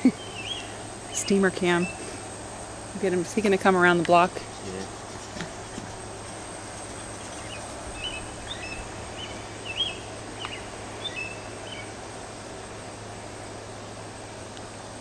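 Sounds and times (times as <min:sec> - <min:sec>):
bird chirping: 0:00.0 - 0:02.2, 0:04.5 - 0:11.9
steady background hiss: 0:00.0 - 0:15.0.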